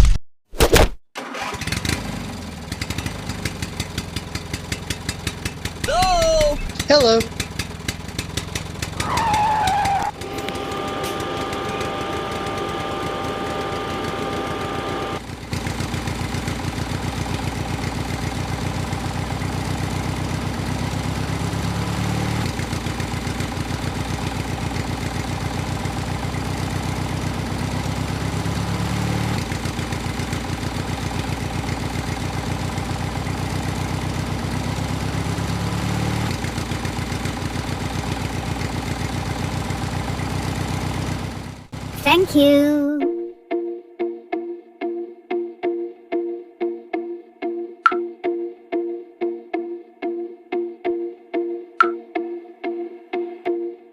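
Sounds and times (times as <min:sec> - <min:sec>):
tractor engine idling: 0:01.3 - 0:21.8, 0:22.5 - 0:35.8, 0:36.4 - 0:42.0
higher-pitched hum: 0:10.2 - 0:15.2.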